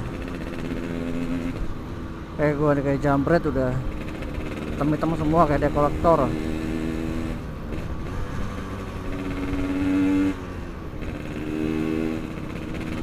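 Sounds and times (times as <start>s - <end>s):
two-stroke motorcycle engine revving: 0.0s - 1.8s, 2.4s - 13.0s.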